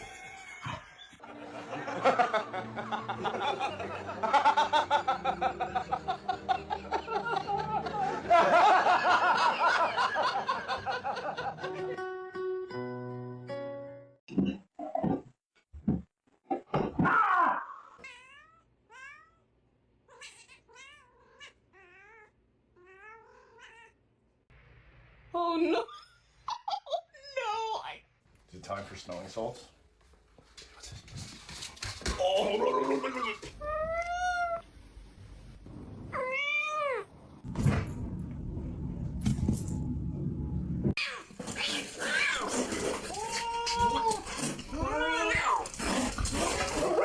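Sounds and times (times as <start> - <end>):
cat meowing: 20.1 - 24.0, 36.1 - 37.1
cat yowling: 41.0 - 45.7.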